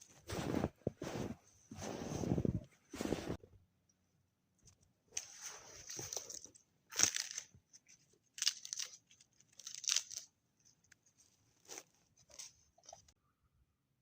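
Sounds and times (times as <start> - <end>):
footsteps crunching on frozen snow: 0.0 - 2.4.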